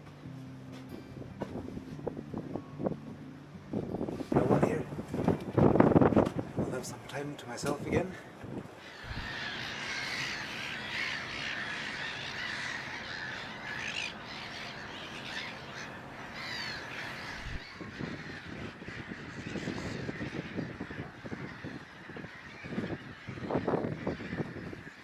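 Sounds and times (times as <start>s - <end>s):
birds calling harshly: 6.7s - 25.0s.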